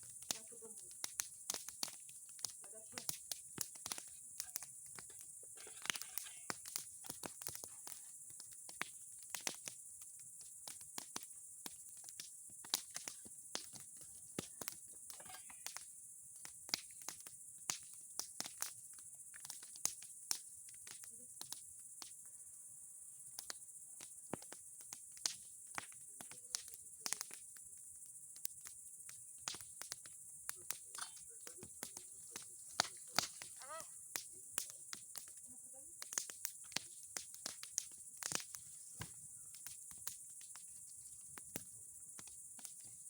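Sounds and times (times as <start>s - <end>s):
bonfire crackling and popping: 0.0s - 22.6s, 23.2s - 43.0s.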